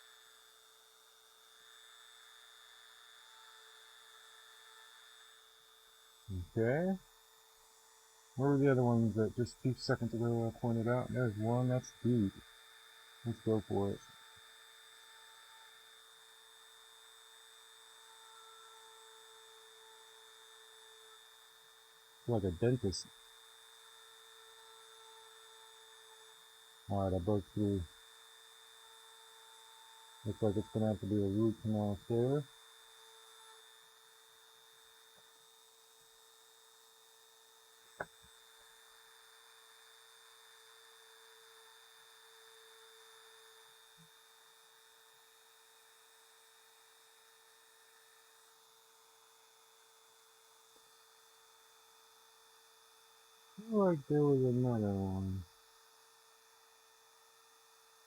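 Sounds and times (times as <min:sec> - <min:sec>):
faint electrical hum: 0:00.0 - 0:34.1
rotary tool whine: 0:00.0 - 0:51.2, 0:53.6 - 0:55.4.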